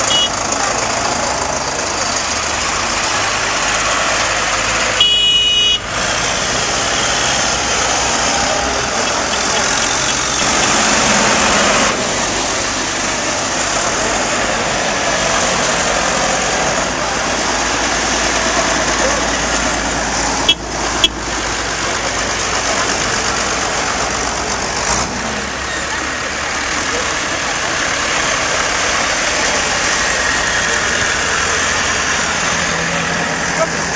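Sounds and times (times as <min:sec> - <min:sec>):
horn sounding: 0:00.0 - 0:00.6, 0:04.9 - 0:06.0, 0:20.4 - 0:21.2
tractor engines running: 0:00.0 - 0:33.9.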